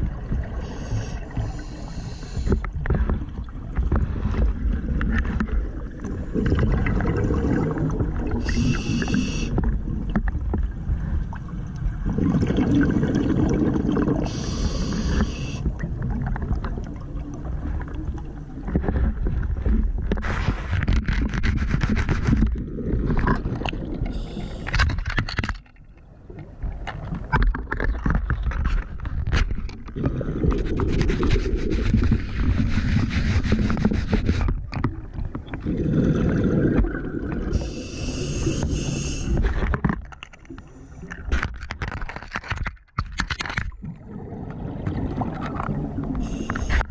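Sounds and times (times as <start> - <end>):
exhaled air bubbling underwater: 0.0 - 20.2, 22.4 - 24.9, 29.6 - 41.4, 43.7 - 46.9
regulator inhalation hisses: 0.6 - 2.6, 8.4 - 9.6, 14.2 - 15.6, 24.1 - 24.7, 37.6 - 39.4, 46.2 - 46.9
sharp clicks and scrapes: 20.0 - 25.8, 26.8 - 30.1, 30.8 - 35.6, 38.4 - 43.8, 45.4 - 46.9.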